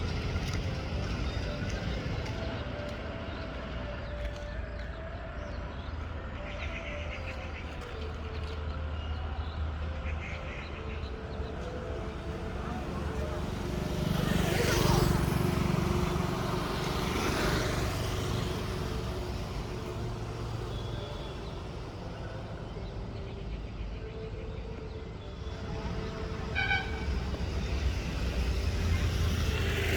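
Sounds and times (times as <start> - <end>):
vehicle engine rumbling: 0.0 - 23.3.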